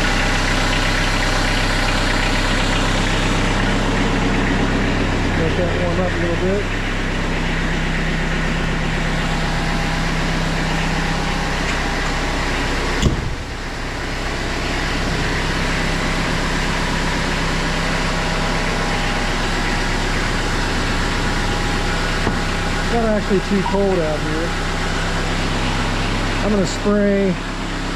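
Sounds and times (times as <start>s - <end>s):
diesel tractor engine idling: 0.0s - 27.9s
sharp knock: 13.0s - 13.4s.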